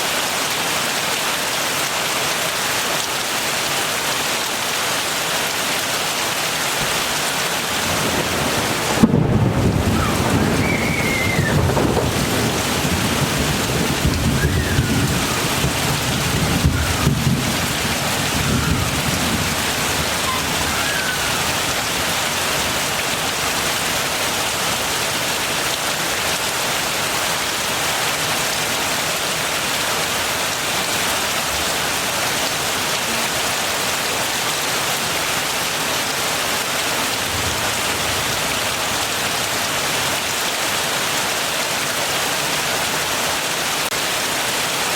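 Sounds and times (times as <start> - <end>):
heavy rain falling: 0.0 - 44.9
thunder rumbling: 7.7 - 22.7.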